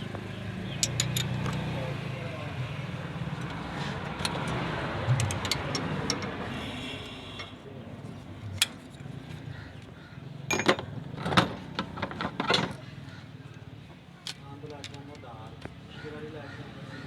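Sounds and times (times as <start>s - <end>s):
hand tools clinking on engine: 0.7s - 1.8s, 3.3s - 6.4s, 10.5s - 12.8s.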